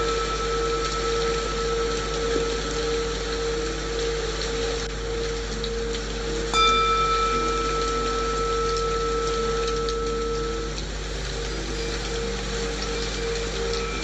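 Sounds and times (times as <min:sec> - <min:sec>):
low held tone: 0:00.0 - 0:14.0
rain patter: 0:00.0 - 0:14.0
singing bowl ringing: 0:00.0 - 0:14.0.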